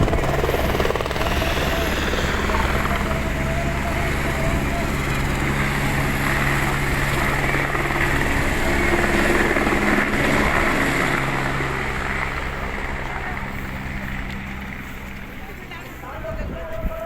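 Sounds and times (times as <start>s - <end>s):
helicopter rotor and turbine: 0.0s - 16.7s.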